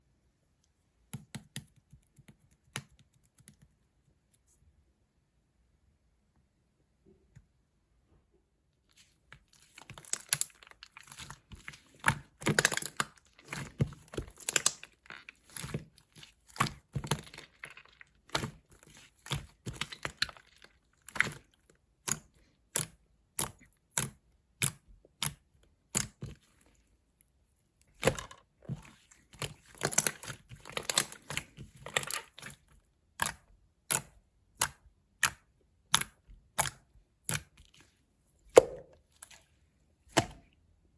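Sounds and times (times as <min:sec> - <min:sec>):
slime squelching and crackling: 0:08.9 - 0:26.9, 0:27.9 - 0:37.9.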